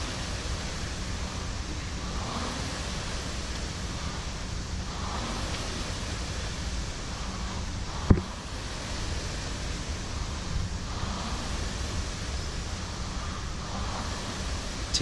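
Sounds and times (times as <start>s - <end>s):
rowing machine flywheel whooshing: 0.0s - 15.0s
sharp thump: 8.1s - 8.3s.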